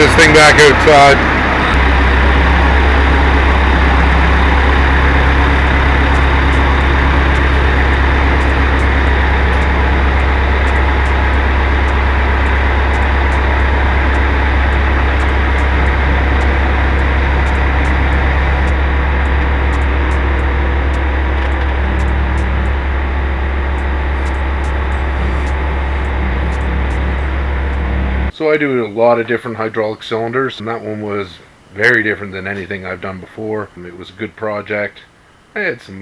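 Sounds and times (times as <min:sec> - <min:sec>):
backhoe engine droning: 0:00.0 - 0:28.3.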